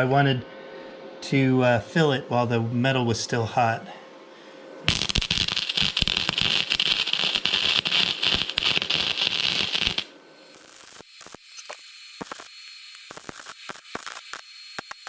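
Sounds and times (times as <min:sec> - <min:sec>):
arc welding crackle: 0:04.9 - 0:15.0.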